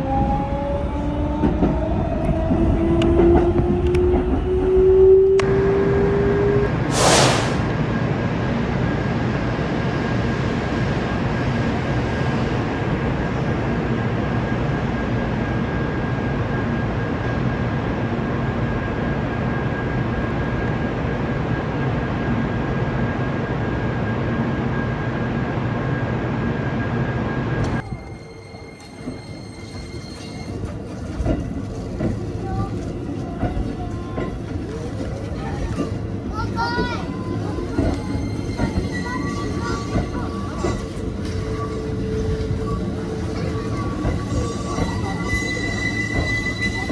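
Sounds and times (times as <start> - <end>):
train running past on tracks: 0.0 - 46.9.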